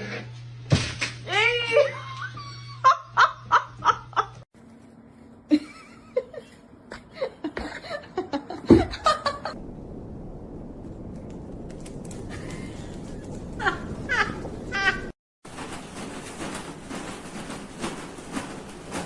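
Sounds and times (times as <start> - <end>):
person laughing: 5.5 - 9.6, 13.5 - 15.1.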